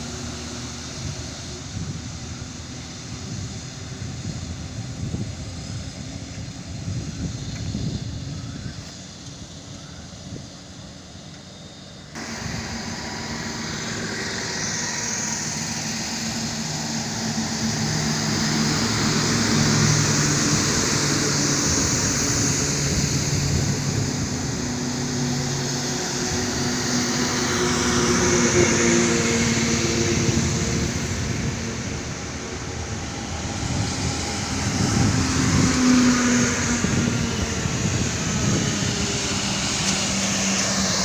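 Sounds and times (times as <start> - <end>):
road and wind noise: 0.0 - 41.0
truck engine running: 10.8 - 41.0.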